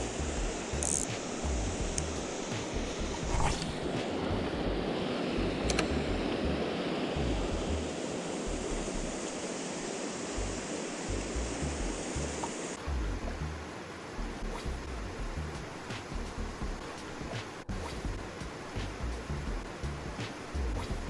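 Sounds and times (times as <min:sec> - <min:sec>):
wind buffeting microphone: 0:00.0 - 0:06.6
river water rushing: 0:00.0 - 0:21.0
faint click: 0:05.7 - 0:05.9.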